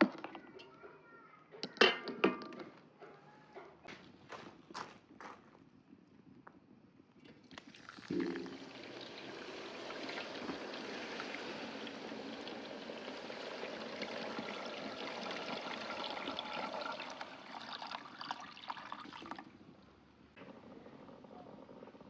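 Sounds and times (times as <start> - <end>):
water pouring and splashing: 7.3 - 19.6.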